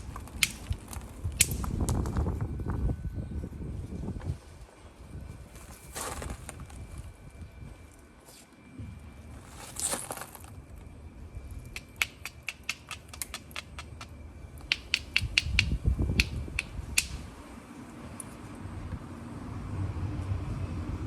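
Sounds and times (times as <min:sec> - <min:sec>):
hammer striking flint: 0:00.2 - 0:00.8, 0:11.8 - 0:17.2.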